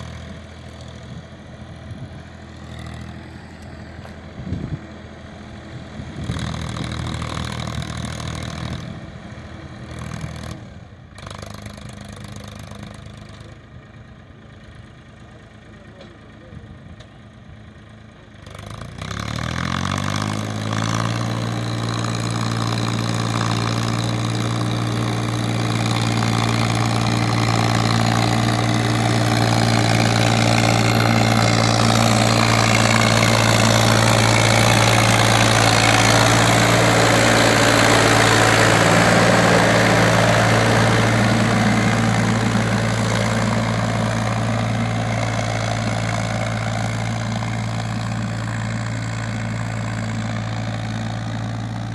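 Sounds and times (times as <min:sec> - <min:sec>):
tractor diesel engine starting up: 0:20.3 - 0:51.9.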